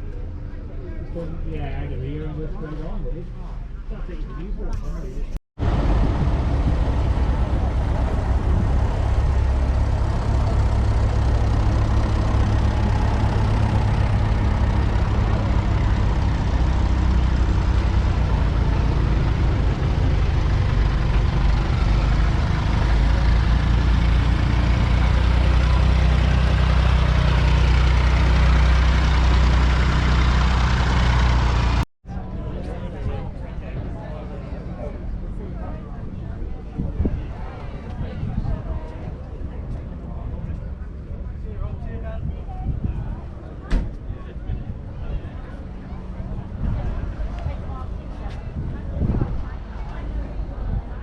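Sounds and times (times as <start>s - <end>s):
tractor diesel engine droning: 5.6s - 31.9s.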